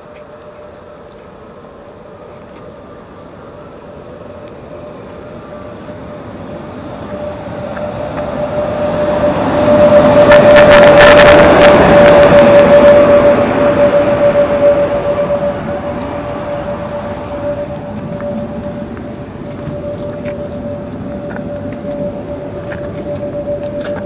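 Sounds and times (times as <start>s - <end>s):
electric train approaching: 0.0s - 24.0s
steady whining tone: 0.0s - 24.0s
sharp clacks of train wheels: 7.1s - 24.0s.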